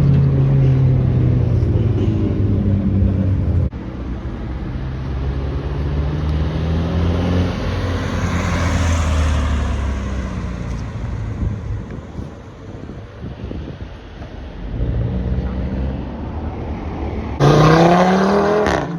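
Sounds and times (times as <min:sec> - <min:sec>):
car driving past: 0:05.2 - 0:13.0.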